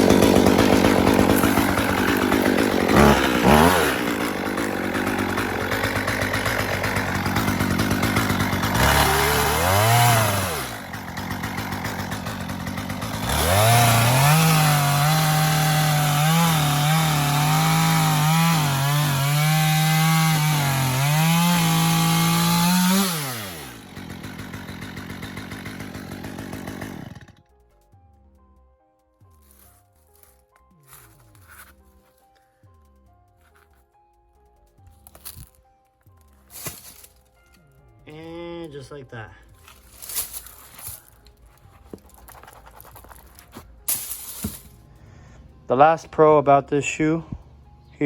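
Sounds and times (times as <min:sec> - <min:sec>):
chainsaw cutting through shoe: 0:00.0 - 0:27.4, 0:35.1 - 0:35.6, 0:36.5 - 0:37.2, 0:39.6 - 0:44.8
chainsaw engine revving: 0:00.0 - 0:27.4.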